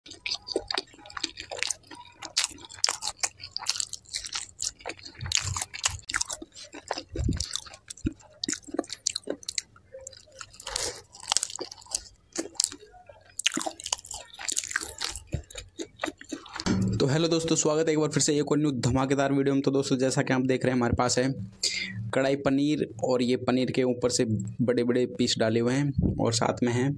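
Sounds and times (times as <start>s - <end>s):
person chewing food: 0.1s - 16.7s.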